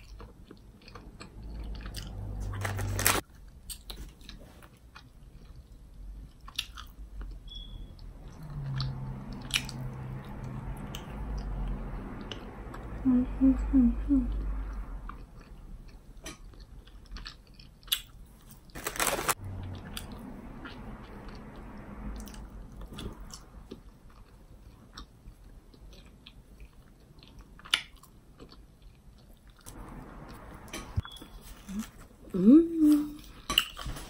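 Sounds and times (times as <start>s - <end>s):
chewing chewy candy: 14.4s - 30.4s.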